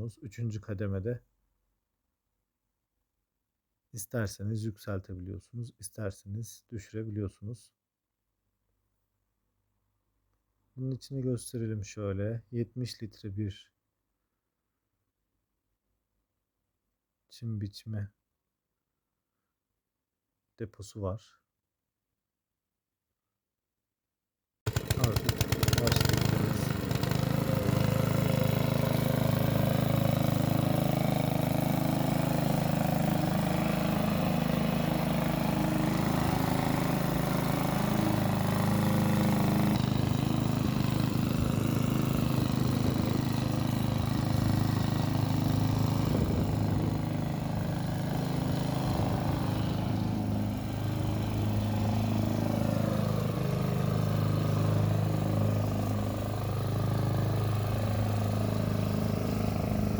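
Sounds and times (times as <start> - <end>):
lawn mower engine running: 24.7 - 59.9.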